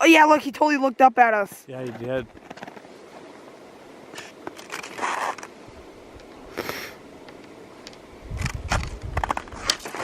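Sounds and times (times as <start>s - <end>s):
camera handling knocks and rubbing: 1.8s - 2.9s
puff of microphone noise: 6.5s - 7.0s.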